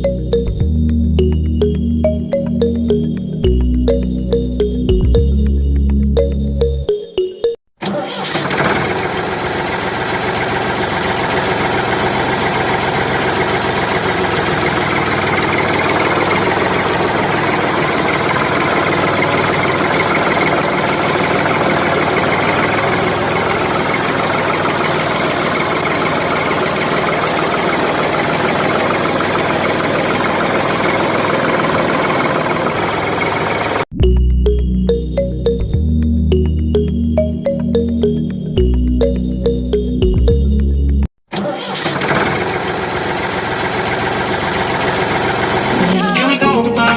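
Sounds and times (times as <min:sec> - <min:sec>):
engine running steadily: 0:08.2 - 0:33.8, 0:41.8 - 0:46.0.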